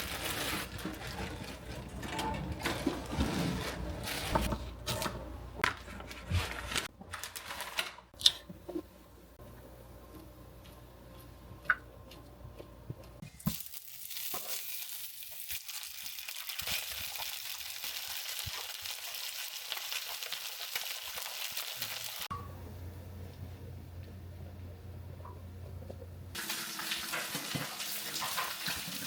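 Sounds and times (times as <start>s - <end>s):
food sizzling in frying pan: 13.4s - 22.3s, 26.4s - 29.0s.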